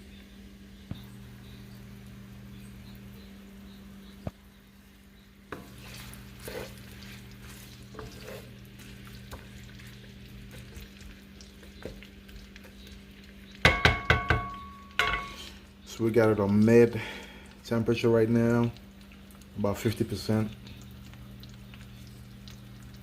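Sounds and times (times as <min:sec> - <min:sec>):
onions frying in oil: 0:00.0 - 0:23.0
utensil knocking on pan: 0:13.6 - 0:15.4.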